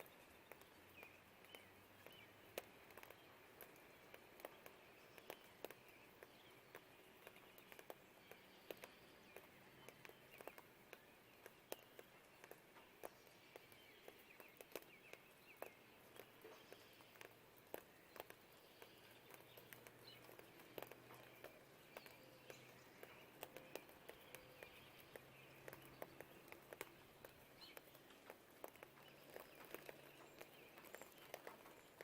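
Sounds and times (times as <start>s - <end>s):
distant traffic hum: 0.0s - 32.0s
faint bird chirps: 0.0s - 32.0s
raindrops ticking and dripping: 0.0s - 32.0s.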